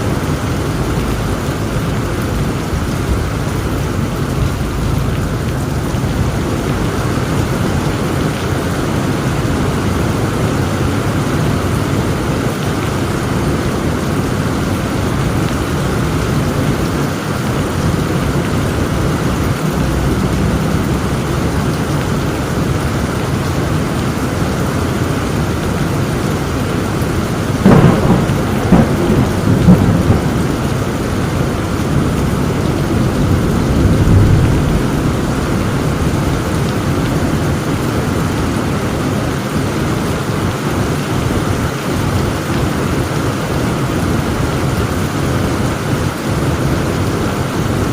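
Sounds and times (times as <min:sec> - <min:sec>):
heavy rain: 0:00.0 - 0:47.9
thunder crack and rumble: 0:27.6 - 0:37.6.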